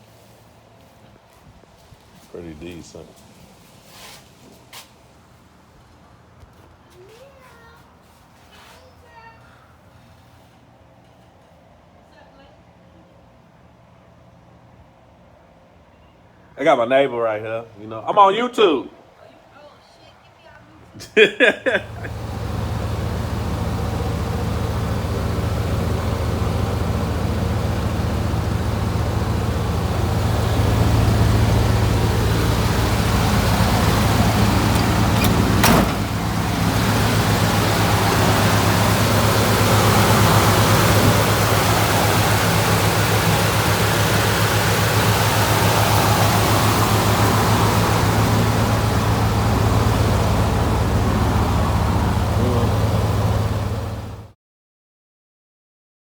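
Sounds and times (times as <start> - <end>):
car engine idling: 21.8 - 54.3.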